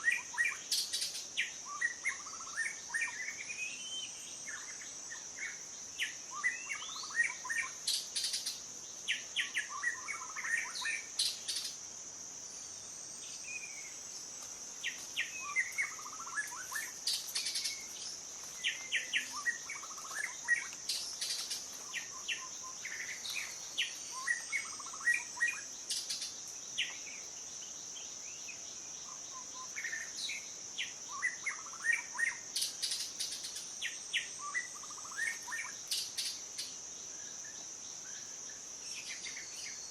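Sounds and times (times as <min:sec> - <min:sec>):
small birds chirping: 0:00.0 - 0:39.9
high-pitched insect drone: 0:12.9 - 0:30.5.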